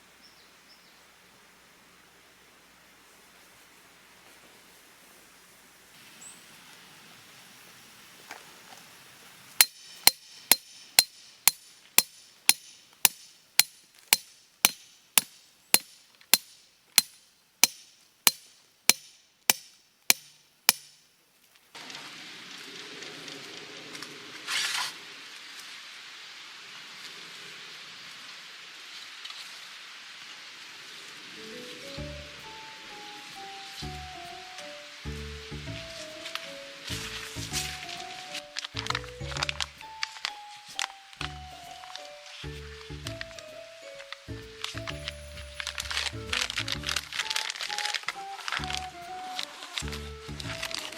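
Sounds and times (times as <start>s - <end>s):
steady hiss: 0.0s - 38.9s
hammer striking metal: 9.6s - 21.0s.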